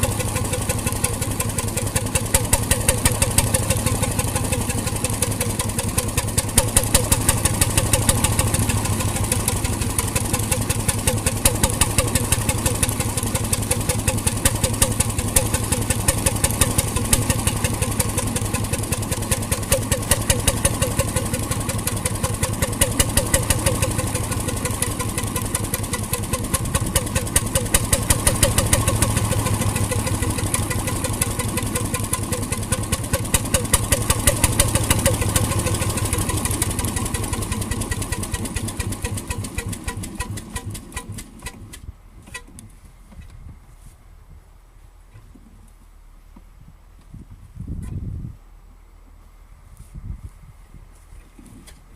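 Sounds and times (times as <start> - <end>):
marine engine knocking: 0.0 - 41.2.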